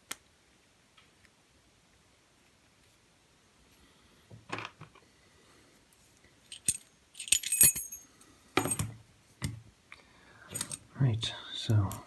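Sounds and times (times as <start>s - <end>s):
metal tools clinking: 6.5s - 8.0s, 8.6s - 8.9s, 10.5s - 10.8s.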